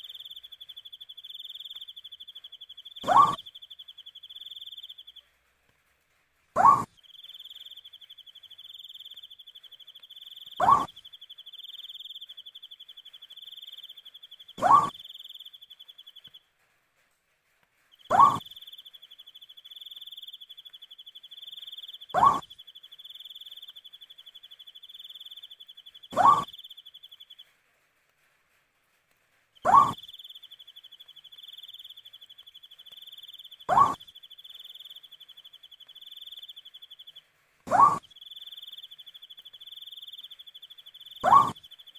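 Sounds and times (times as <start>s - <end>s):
owl hooting: 0.0s - 5.2s, 6.6s - 16.4s, 18.0s - 27.4s, 29.6s - 41.9s
cricket trilling: 7.1s - 15.9s, 29.6s - 37.1s.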